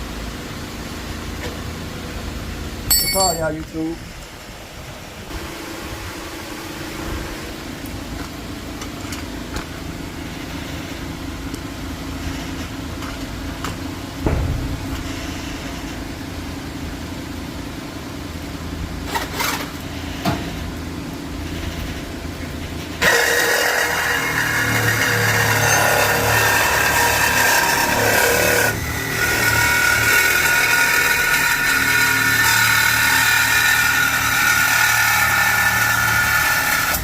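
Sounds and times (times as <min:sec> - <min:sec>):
sharp metallic knocks: 0:02.9 - 0:03.6, 0:14.2 - 0:15.0
harsh grinding noise: 0:22.9 - 0:37.0.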